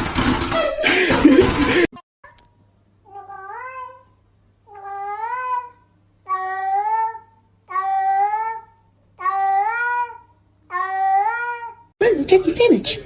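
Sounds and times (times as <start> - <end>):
cat meowing: 3.1 - 4.1, 4.7 - 8.6, 9.2 - 11.9.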